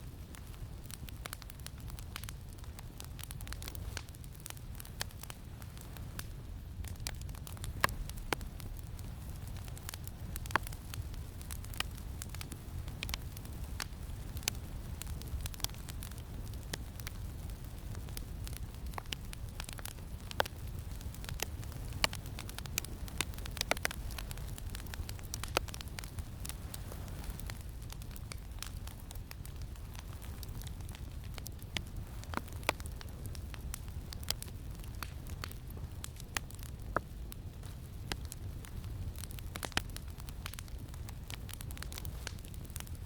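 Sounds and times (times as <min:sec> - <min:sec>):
campfire crackling: 0:00.0 - 0:43.0.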